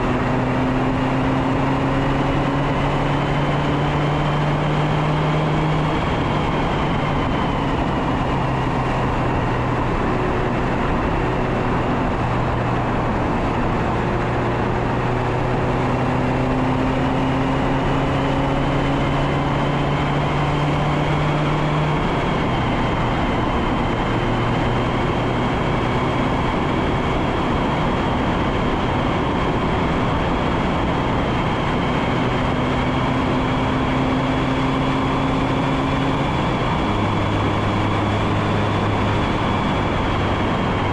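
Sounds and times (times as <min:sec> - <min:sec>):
car engine and exhaust: 0:00.0 - 0:40.9
wind noise on microphone: 0:19.0 - 0:40.9.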